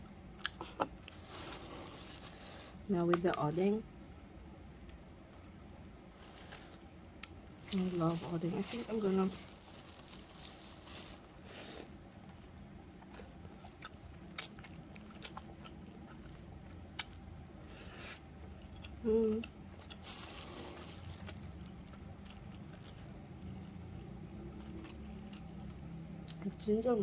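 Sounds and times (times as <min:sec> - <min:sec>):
person chewing: 0:10.4 - 0:17.2, 0:17.8 - 0:21.4.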